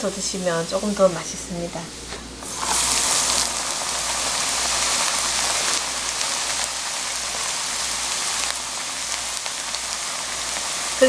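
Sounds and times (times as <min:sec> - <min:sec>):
rice crackling in hot oil: 0:02.4 - 0:11.0.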